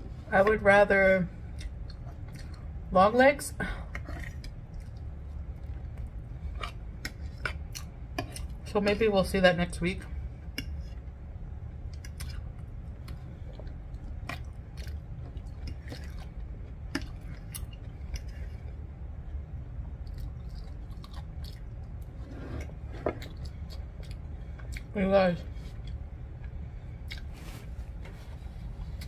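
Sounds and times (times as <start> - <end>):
chewing soft fries: 1.4 - 2.9, 3.9 - 8.7, 11.8 - 19.0, 19.8 - 25.0, 25.7 - 27.6.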